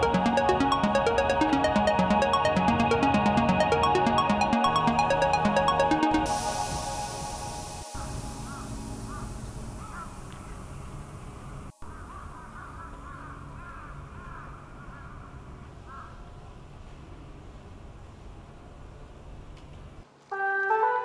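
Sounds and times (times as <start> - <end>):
birds calling: 8.0 - 10.9.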